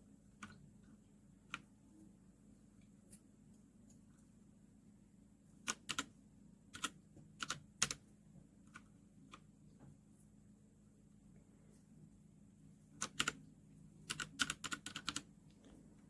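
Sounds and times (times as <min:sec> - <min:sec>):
mechanical keyboard keystrokes: 0:05.7 - 0:06.1, 0:06.7 - 0:08.0, 0:13.0 - 0:13.4, 0:14.1 - 0:15.3.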